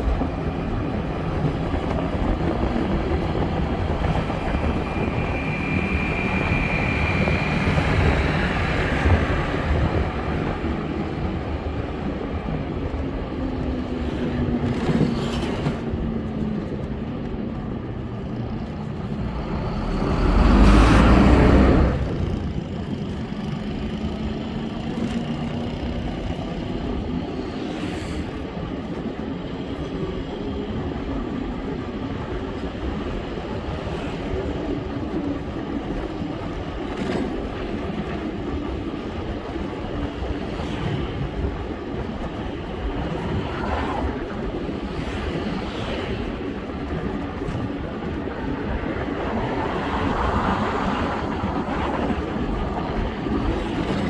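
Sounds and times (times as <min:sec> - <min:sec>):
road traffic noise: 0:00.0 - 0:29.4
vehicles passing: 0:17.9 - 0:26.3.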